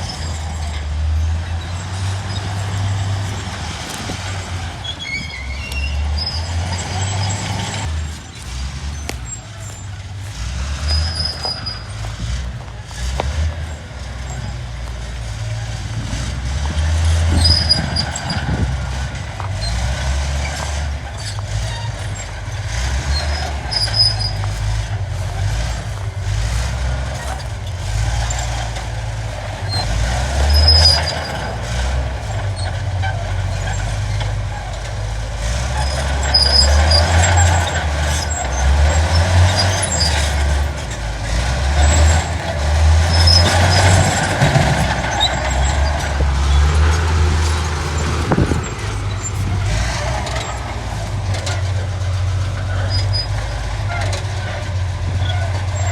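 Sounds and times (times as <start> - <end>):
short high squeaks: 0.0 - 12.4, 19.6 - 51.8
heavy diesel machinery running: 0.0 - 55.9
metal clanks: 0.0 - 55.9.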